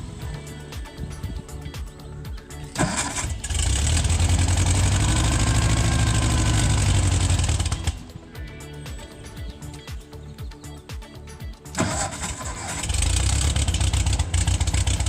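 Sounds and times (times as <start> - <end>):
skid steer engine running: 2.7 - 8.1, 11.8 - 15.0.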